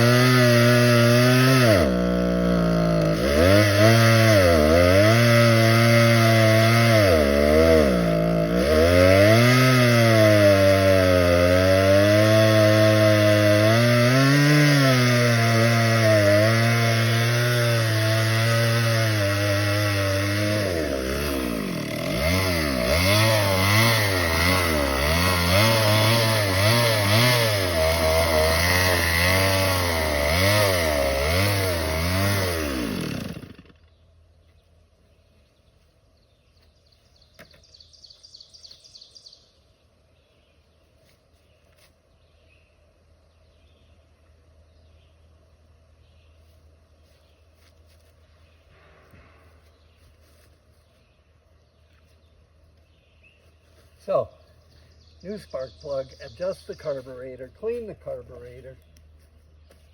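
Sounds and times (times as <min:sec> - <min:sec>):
chainsaw engine running: 0:00.0 - 0:34.0.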